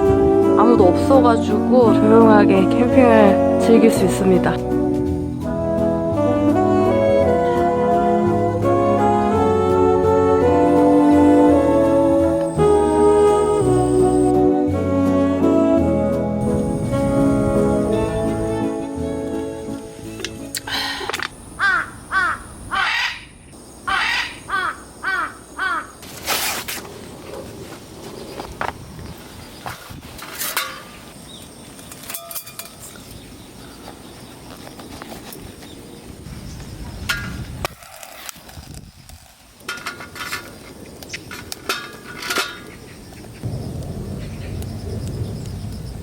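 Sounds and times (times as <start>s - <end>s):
low outdoor background hum: 4.7s - 14.4s, 16.4s - 28.7s, 39.7s - 46.0s
bird calling: 10.4s - 14.4s, 16.4s - 26.1s, 42.7s - 46.0s
noisy rustle: 16.4s - 20.6s, 26.0s - 32.2s, 33.8s - 46.0s
light metallic clinks and knocks: 31.9s - 33.1s.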